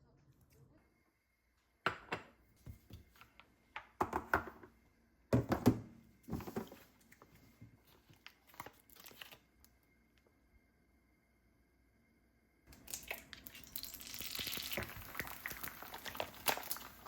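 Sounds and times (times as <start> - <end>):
packaging crinkling and tearing: 8.1 - 9.4, 12.9 - 17.0.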